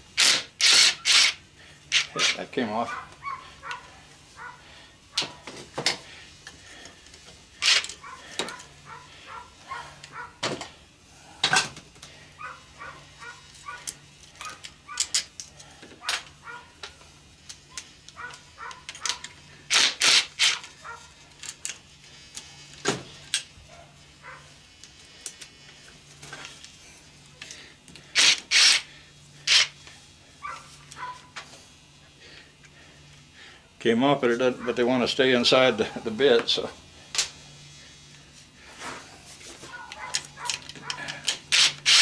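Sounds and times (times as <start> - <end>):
metal parts and tools clanking: 7.6 - 8.7.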